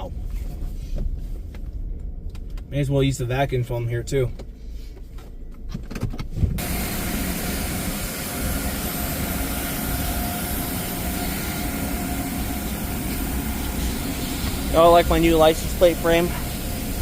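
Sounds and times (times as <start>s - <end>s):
vacuum suction rushing: 6.6s - 17.0s.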